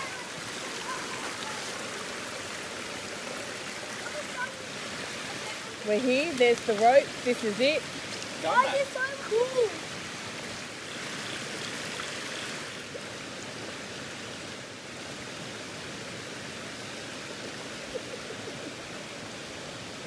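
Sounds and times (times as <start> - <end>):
waterfall pouring into a pool: 0.0 - 20.0.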